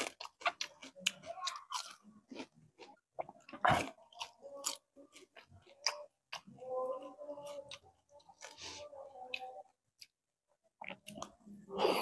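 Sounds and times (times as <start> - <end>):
crunching fried fish: 0.0 - 6.3.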